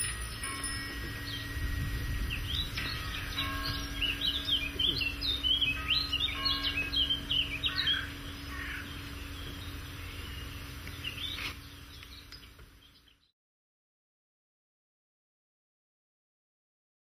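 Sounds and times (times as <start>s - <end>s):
steady low hum: 0.0s - 13.2s
small birds chirping: 0.0s - 13.3s.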